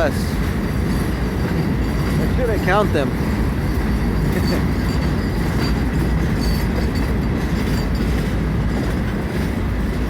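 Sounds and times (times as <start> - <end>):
train wheels rumbling on track: 0.0 - 10.0
high wheel squeal: 3.6 - 8.2.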